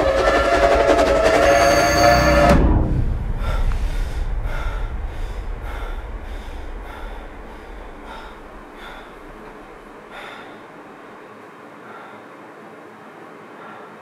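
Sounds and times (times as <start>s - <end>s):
deep low rumble: 1.2s - 10.0s
man gasping for breath: 3.3s - 10.7s, 13.6s - 14.0s.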